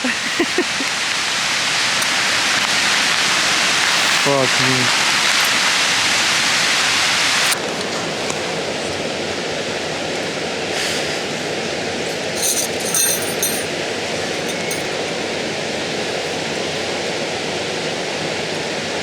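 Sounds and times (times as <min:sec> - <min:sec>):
loud hiss: 0:00.0 - 0:17.8
running water from a stream: 0:00.0 - 0:19.0
light metallic clinks: 0:12.0 - 0:15.2.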